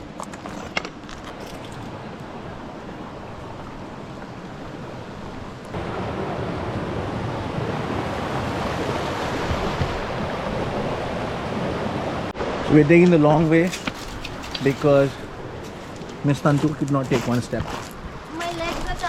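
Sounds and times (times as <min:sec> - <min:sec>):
water flowing: 0:00.0 - 0:19.0.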